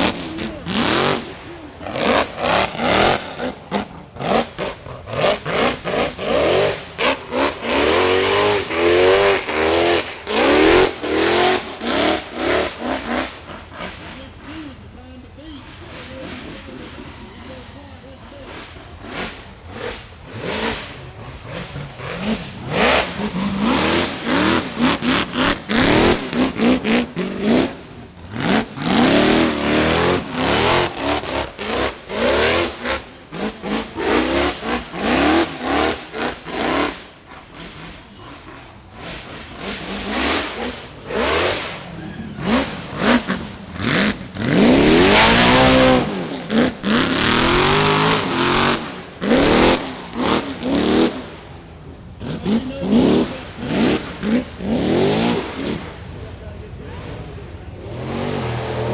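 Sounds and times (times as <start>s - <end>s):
buggy engine revving: 0.0s - 58.9s.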